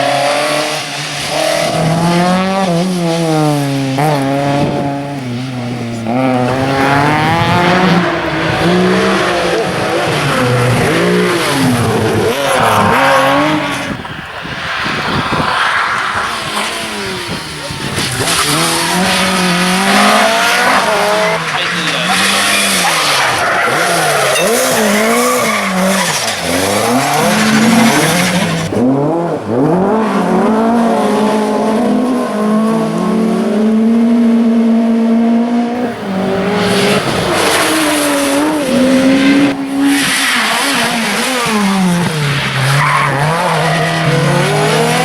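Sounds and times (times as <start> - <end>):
rally car engine revving: 0.0 - 45.0
loud rushing noise: 3.2 - 24.2.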